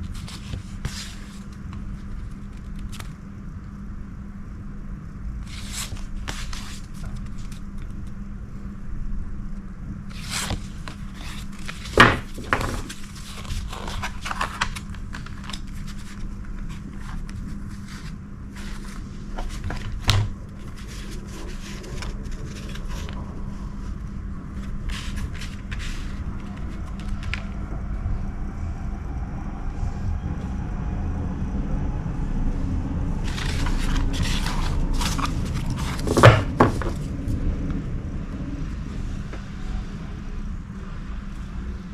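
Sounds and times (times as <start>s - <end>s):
steady low hum: 0.0s - 41.9s
postcards rustling and tapping: 10.1s - 23.2s, 24.6s - 27.6s, 33.2s - 37.1s.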